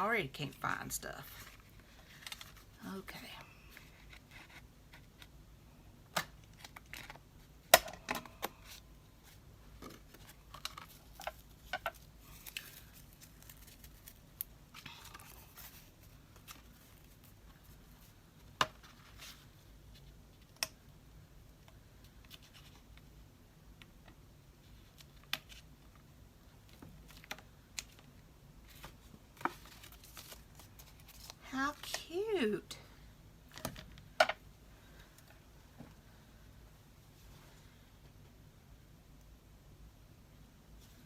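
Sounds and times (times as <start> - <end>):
paper rustling: 8.6 - 18.1, 28.6 - 31.4.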